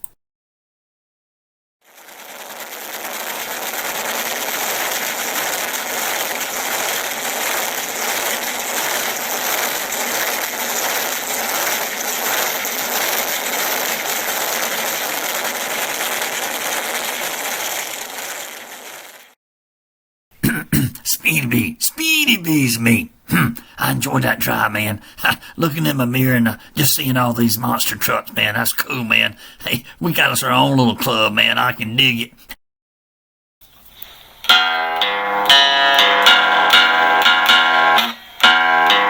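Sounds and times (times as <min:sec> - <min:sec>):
toy truck wheels rattling: 0:01.9 - 0:19.4.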